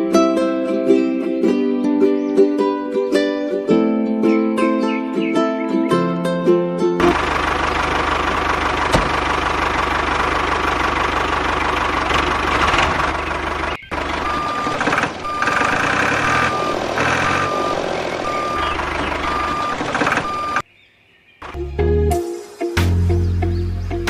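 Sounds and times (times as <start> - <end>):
vehicle engine running: 7.0 - 20.6
reversing alarm beeping: 13.9 - 20.6.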